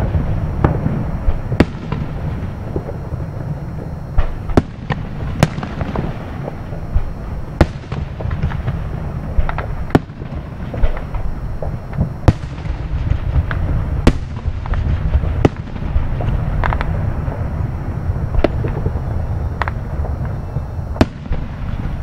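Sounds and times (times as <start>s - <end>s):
distant firework bangs: 0.0s - 22.0s
firework crackles: 0.0s - 22.0s.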